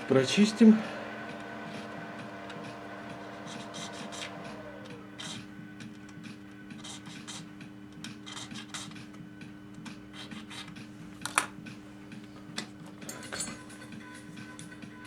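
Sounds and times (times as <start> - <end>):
steady low hum: 0.0 - 15.0
filing metal rack teeth: 9.8 - 10.8.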